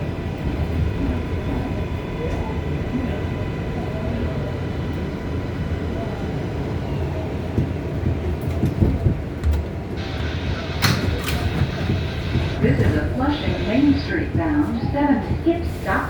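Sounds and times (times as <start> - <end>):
subway car rumbling: 0.0 - 16.0
higher hum: 9.9 - 16.0
sharp clicks: 10.8 - 12.6.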